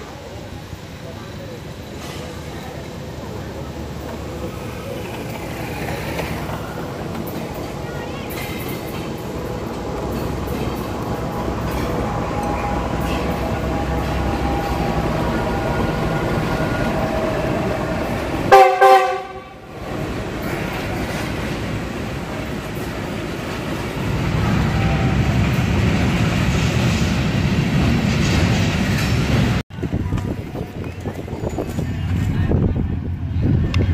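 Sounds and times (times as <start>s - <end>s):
locomotive engine running: 0.0s - 33.9s
wagons rumbling on rails: 0.0s - 33.9s
loud train horn blast: 11.4s - 19.8s.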